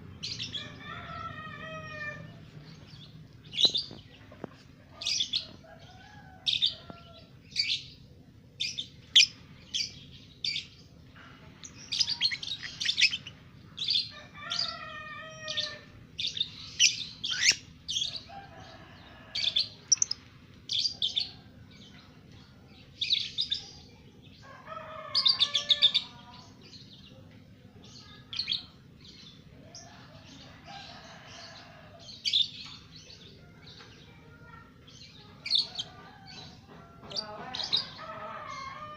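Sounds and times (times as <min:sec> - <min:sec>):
bird chattering: 0:11.9 - 0:13.3
lovebird chirping: 0:11.9 - 0:13.3.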